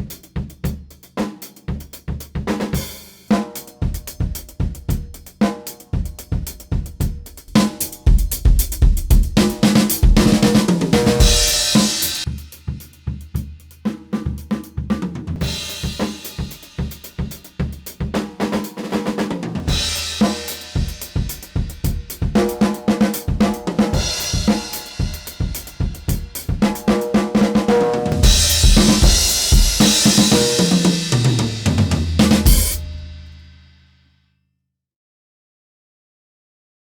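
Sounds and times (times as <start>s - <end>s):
snare drum: 0.0s - 13.2s, 13.8s - 33.4s
drum fill on lower drums: 0.0s - 33.7s
hi-hat: 3.0s - 13.8s, 19.8s - 27.1s, 28.2s - 31.5s
kick drum: 8.1s - 10.4s, 28.2s - 30.0s
crash cymbals: 11.2s - 13.0s, 19.7s - 22.2s, 23.9s - 26.9s, 28.2s - 33.8s.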